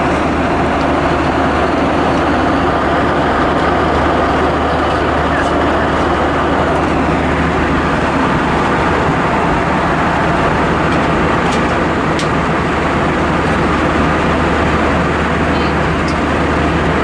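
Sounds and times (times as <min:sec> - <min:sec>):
jet engines humming: 0:00.0 - 0:17.0.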